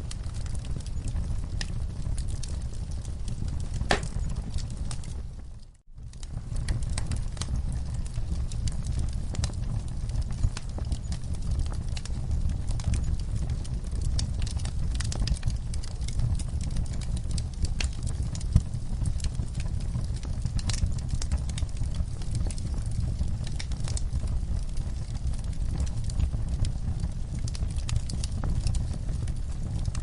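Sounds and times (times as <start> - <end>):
wood fire crackling and popping: 0.0 - 30.0.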